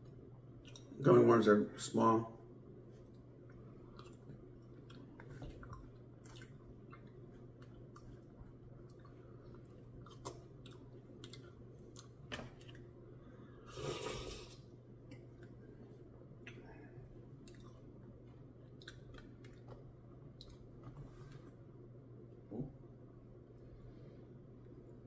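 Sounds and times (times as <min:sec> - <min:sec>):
person chewing wet smacks: 0:00.0 - 0:01.0, 0:03.0 - 0:13.0, 0:15.0 - 0:20.9.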